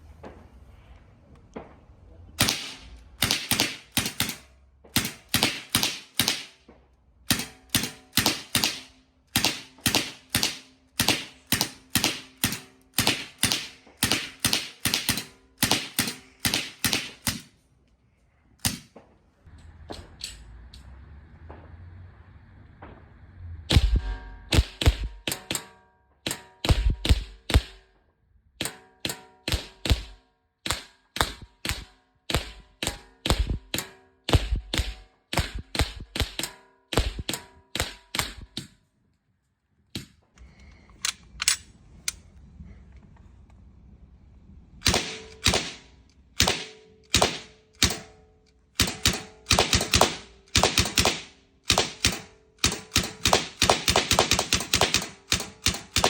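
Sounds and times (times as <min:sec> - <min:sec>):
air rifle shots cracking: 0:02.4 - 0:17.6, 0:18.6 - 0:19.0, 0:23.7 - 0:27.9, 0:28.6 - 0:38.8, 0:44.8 - 0:56.0.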